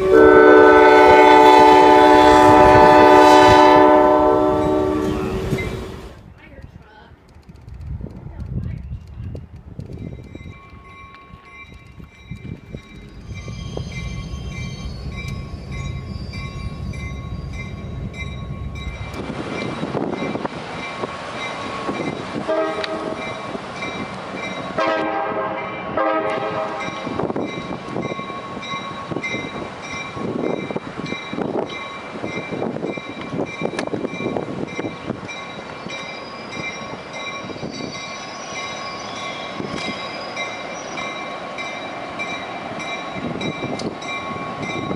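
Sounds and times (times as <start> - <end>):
train horn blasts: 0.0 - 6.0, 22.4 - 23.4, 24.8 - 27.2
train passing: 0.0 - 44.9.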